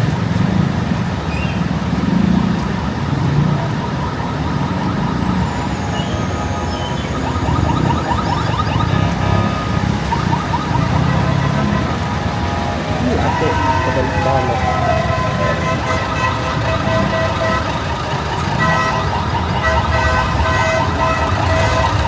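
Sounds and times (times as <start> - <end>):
vehicle engines running: 0.0 - 22.0
rapid warbling tone: 3.7 - 11.6.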